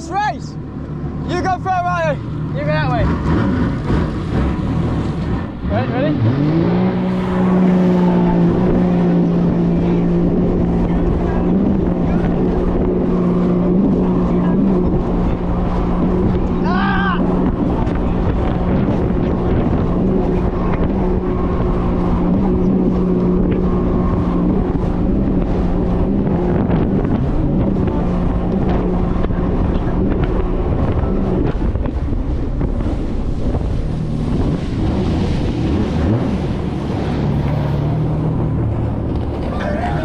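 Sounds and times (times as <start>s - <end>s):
jet ski engine droning: 0.0s - 40.0s
rushing water: 0.0s - 40.0s
wind buffeting microphone: 1.3s - 40.0s.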